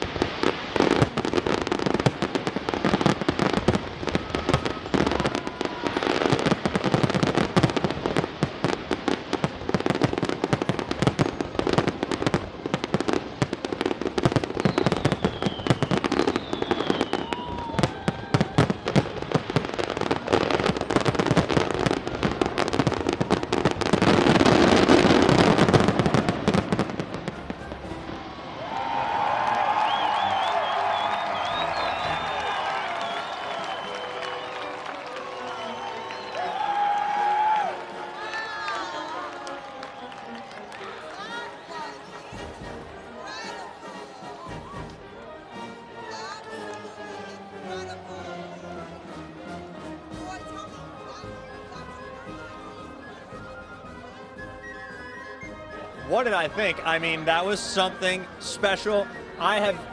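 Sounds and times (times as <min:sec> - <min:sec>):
firework whistles: 0:00.0 - 0:27.9, 0:28.8 - 0:39.2, 0:51.0 - 0:59.9
fireworks bangs and crackling: 0:00.0 - 0:45.0, 0:55.4 - 0:59.9.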